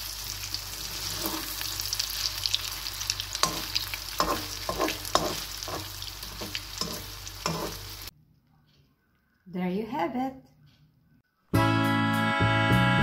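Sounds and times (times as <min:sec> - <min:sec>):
pancake sizzling in oil: 0:00.0 - 0:08.1
spatula scraping and tapping pan: 0:00.8 - 0:01.8, 0:03.3 - 0:08.1.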